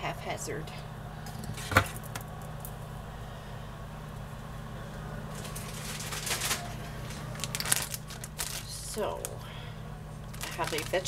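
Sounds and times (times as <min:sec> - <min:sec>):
steady low hum: 0:00.0 - 0:11.0
plastic bag rustling and crinkling: 0:05.3 - 0:09.4, 0:10.2 - 0:11.0.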